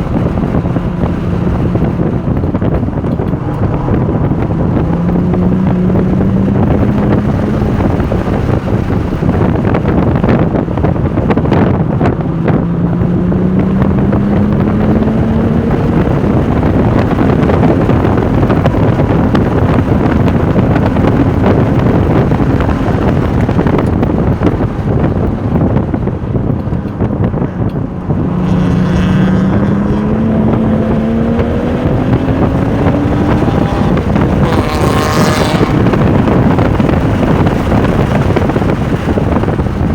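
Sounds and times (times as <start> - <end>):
car engine accelerating hard: 0.0 - 39.9
wind noise on microphone: 0.0 - 39.9.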